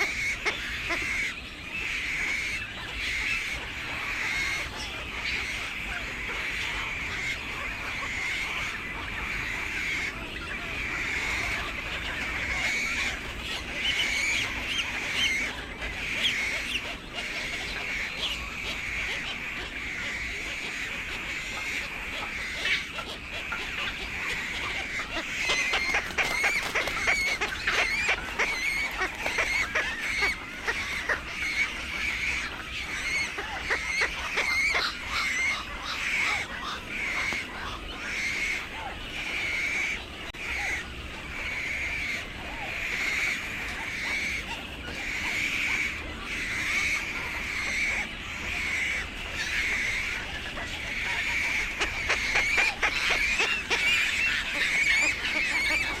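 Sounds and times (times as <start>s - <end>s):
birds calling: 0.0s - 56.0s
rapid clicking chatter: 10.0s - 33.0s.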